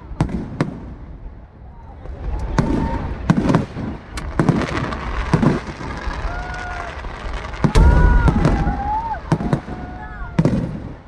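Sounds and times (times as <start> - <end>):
fireworks bangs: 0.0 - 11.0
low rolling rumble: 6.0 - 10.3.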